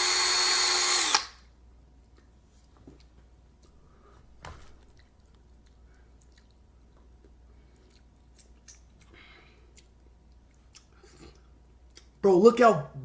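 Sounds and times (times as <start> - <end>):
chewing corn kernels: 4.9 - 12.1.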